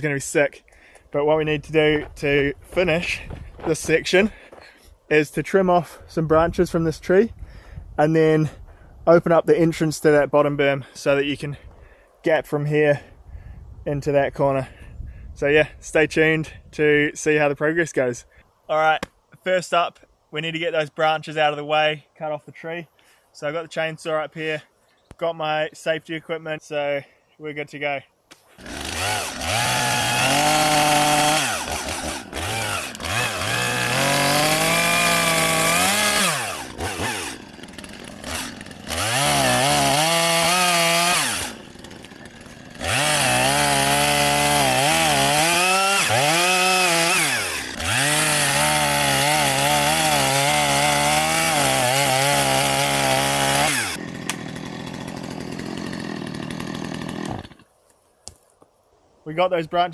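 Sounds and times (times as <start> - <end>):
chainsaw cutting branches: 28.3 - 57.8.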